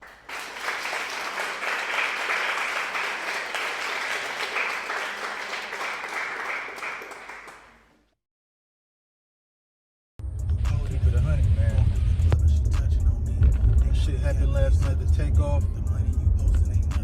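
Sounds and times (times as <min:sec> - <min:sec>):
crowd applauding: 0:00.0 - 0:07.9.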